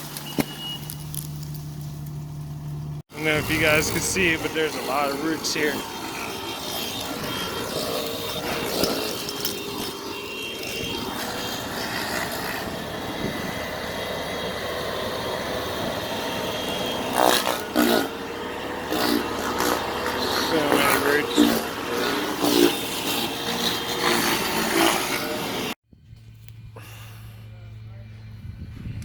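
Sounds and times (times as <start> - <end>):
engine running steadily: 0.0 - 29.0
short voices: 3.2 - 6.0, 19.8 - 21.8.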